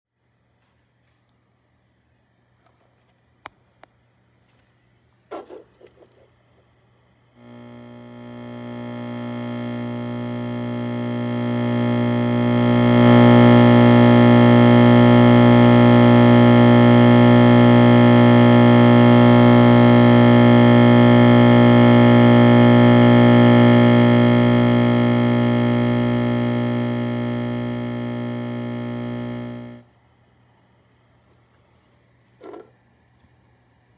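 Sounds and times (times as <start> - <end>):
microwave oven buzzing hum: 7.3 - 30.0.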